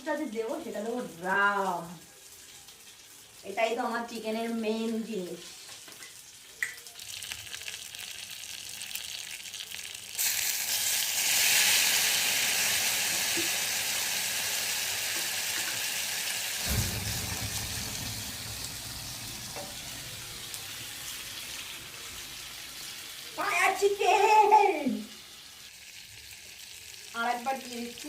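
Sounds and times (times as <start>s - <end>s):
loud oil sizzle: 0.0s - 28.0s
low rushing sound: 16.6s - 21.9s.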